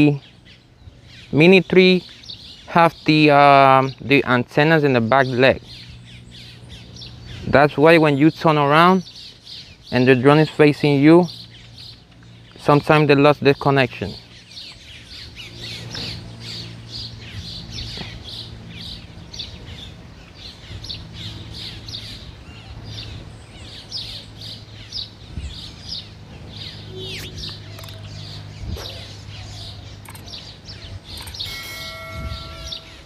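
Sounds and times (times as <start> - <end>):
small birds chirping: 0.0 - 33.0
low hum: 14.2 - 33.0
short steady tone: 31.5 - 33.0.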